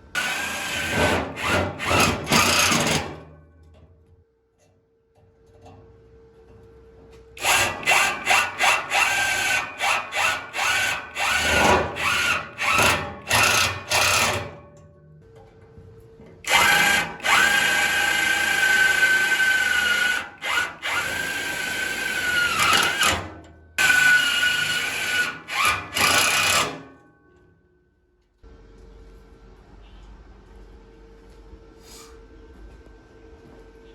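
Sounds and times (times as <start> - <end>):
electric drill whirring: 0.2 - 2.9, 7.4 - 14.4, 16.5 - 23.2, 23.8 - 26.8.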